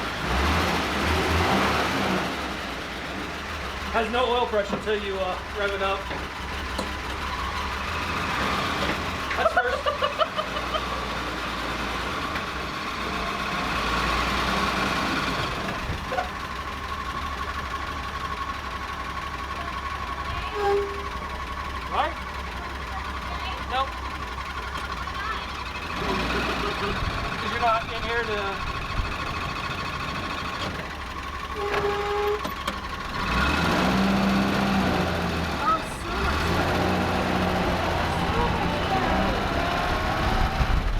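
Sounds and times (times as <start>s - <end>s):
jeep engine pulling away: 0.0s - 40.9s.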